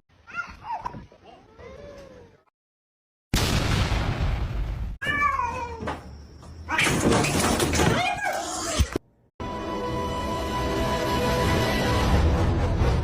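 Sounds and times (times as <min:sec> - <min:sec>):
cat meowing: 0:05.0 - 0:05.9.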